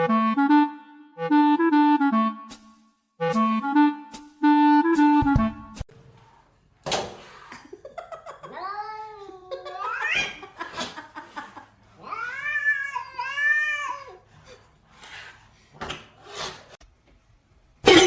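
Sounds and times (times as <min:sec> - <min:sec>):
cat meowing: 0:12.0 - 0:14.1.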